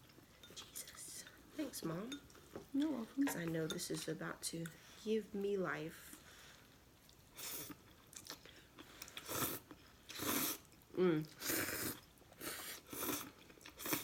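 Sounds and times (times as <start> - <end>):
chewing noises: 7.0 - 14.0
slurping noodles: 9.0 - 14.0.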